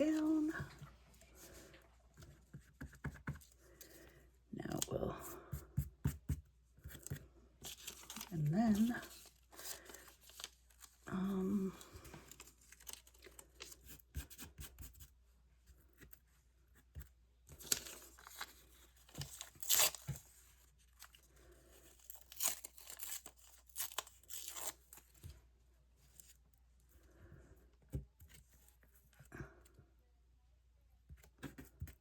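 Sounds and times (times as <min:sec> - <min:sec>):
paper tearing and rustling: 0:17.6 - 0:20.3.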